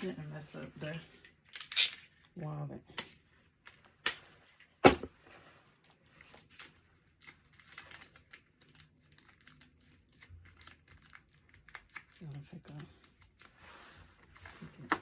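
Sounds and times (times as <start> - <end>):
plastic gift wrapping crinkling: 3.5 - 14.9.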